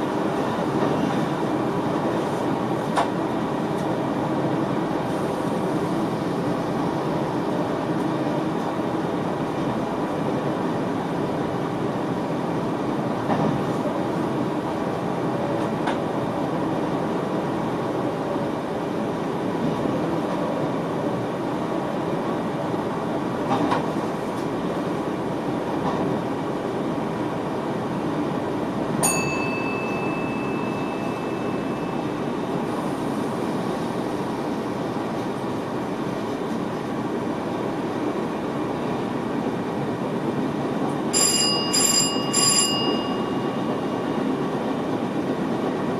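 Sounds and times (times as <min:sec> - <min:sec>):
train rolling on track: 0:00.0 - 0:45.9
steady high tone: 0:29.0 - 0:32.7, 0:41.2 - 0:44.3.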